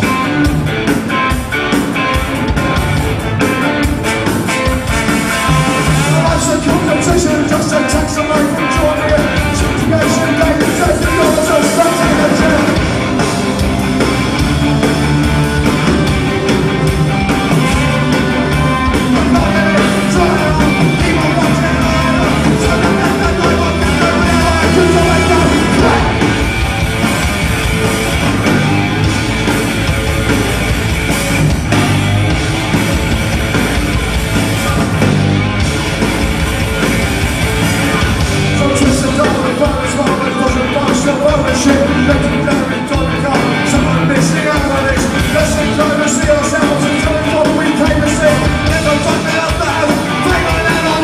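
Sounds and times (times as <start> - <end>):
punk band playing live: 0.0 - 51.0
shouted vocals: 17.6 - 26.6.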